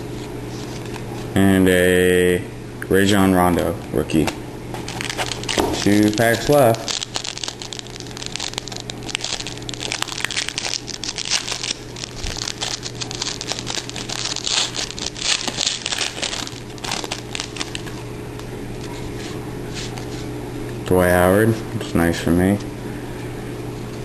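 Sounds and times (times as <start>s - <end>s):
card pack wrapper crinkling: 4.2s - 19.2s.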